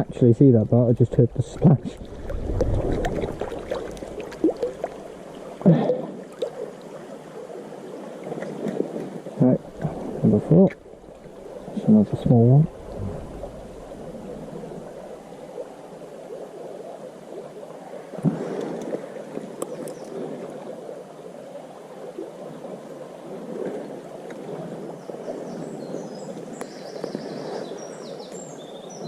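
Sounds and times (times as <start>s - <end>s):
stream water babbling: 0.0s - 29.0s
small birds chirping: 25.0s - 29.0s.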